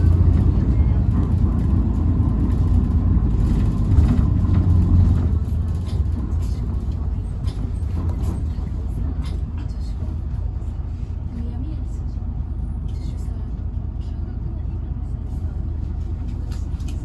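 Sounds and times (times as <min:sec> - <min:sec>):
bus motor droning: 0:00.0 - 0:17.0.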